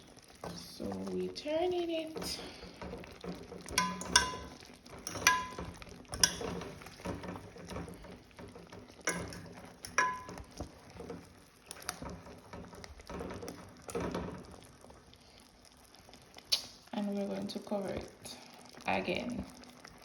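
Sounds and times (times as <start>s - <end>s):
metal utensil clinking against pot: 3.1s - 14.2s.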